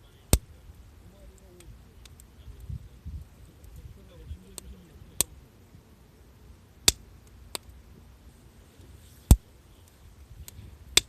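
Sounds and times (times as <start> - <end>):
burning wood popping: 0.0 - 11.0
campfire crackling: 0.0 - 11.0.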